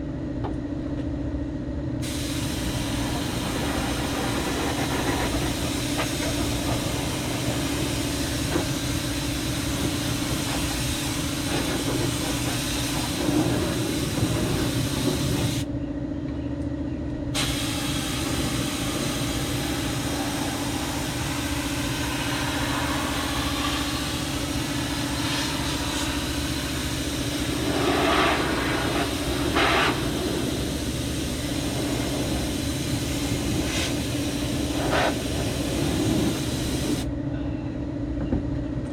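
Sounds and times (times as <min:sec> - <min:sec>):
spray gun hissing: 0:02.0 - 0:15.6, 0:17.4 - 0:37.1
machine hum: 0:17.2 - 0:37.0.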